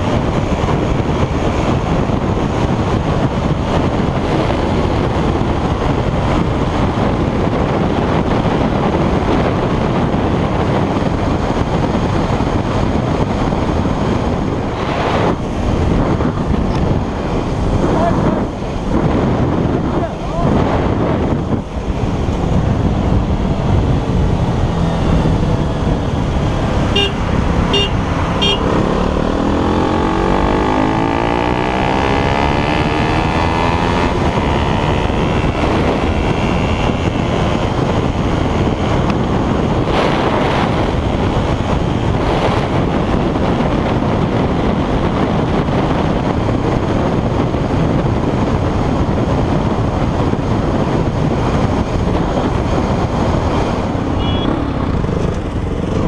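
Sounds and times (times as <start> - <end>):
motorcycle engine accelerating: 0.0 - 56.0
wind and road rush: 0.0 - 56.0
horn toots: 26.9 - 28.8, 54.1 - 54.7.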